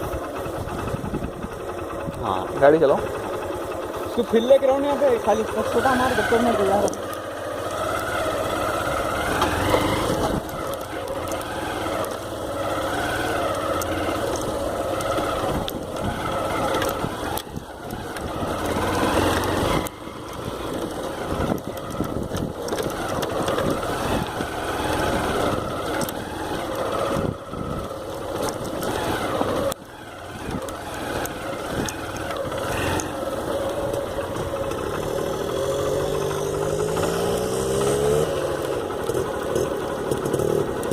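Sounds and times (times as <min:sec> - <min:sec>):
wind noise: 0:00.0 - 0:02.2, 0:20.7 - 0:26.1
motorcycle engine revving: 0:00.0 - 0:40.9.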